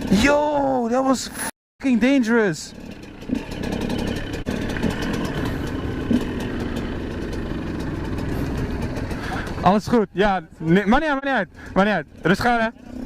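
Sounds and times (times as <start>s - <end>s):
motorcycle engine idling: 1.9s - 13.0s.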